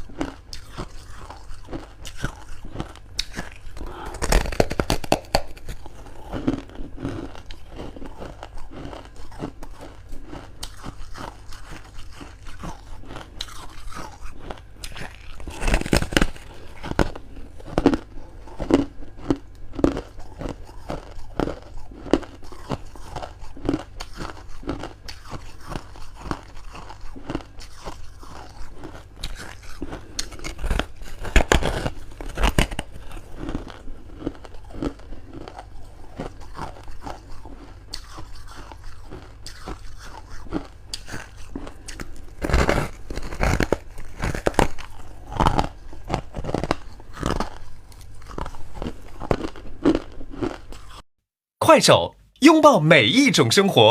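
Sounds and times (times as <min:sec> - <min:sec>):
crunchy chewing of ice: 0:00.0 - 0:51.0
biting into frost: 0:03.2 - 0:05.9.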